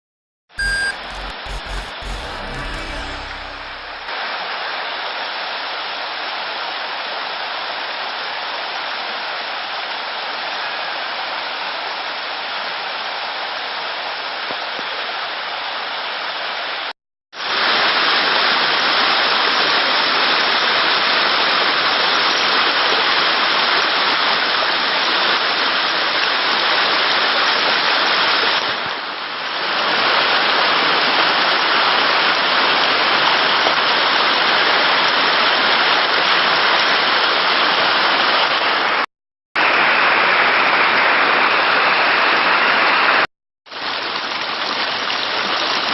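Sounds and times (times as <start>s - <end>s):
rushing water: 2.9s - 45.9s.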